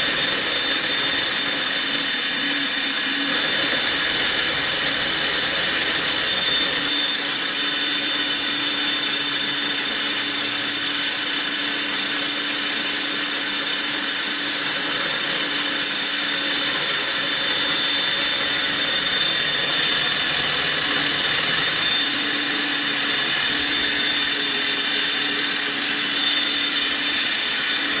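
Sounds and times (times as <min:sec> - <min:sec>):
milling machine whining: 0:00.0 - 0:28.0.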